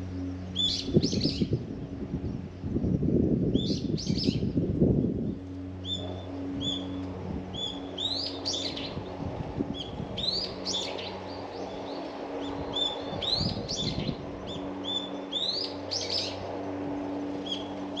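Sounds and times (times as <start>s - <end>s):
birds chirping: 0.0s - 18.0s
low hum: 0.0s - 18.0s.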